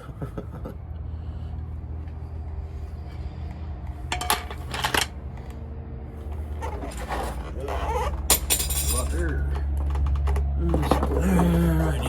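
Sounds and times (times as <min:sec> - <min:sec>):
steady low hum: 0:00.0 - 0:12.0
metal parts clinking: 0:04.1 - 0:05.1, 0:06.7 - 0:09.2.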